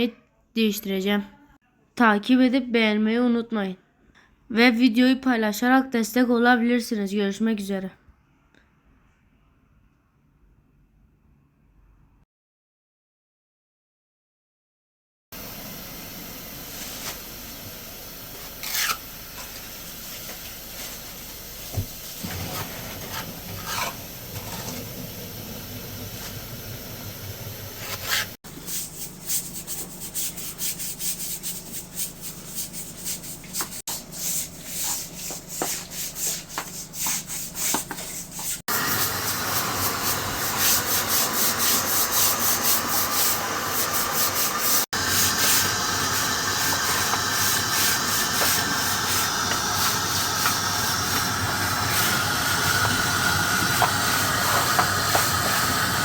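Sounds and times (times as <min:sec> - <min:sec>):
brush scrubbing a fountain: 0:22.2 - 0:24.8, 0:27.8 - 0:56.0.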